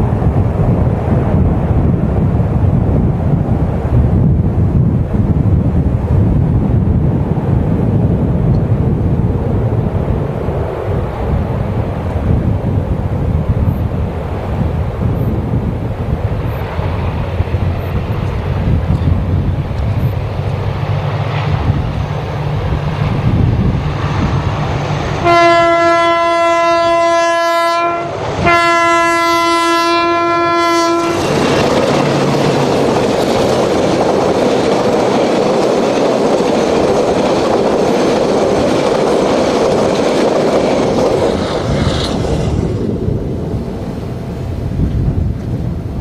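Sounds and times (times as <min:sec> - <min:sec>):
wheel-on-rail noise: 0:00.0 - 0:25.8, 0:30.0 - 0:46.0
locomotive engine humming: 0:00.0 - 0:46.0
train horn blasts: 0:25.2 - 0:31.3.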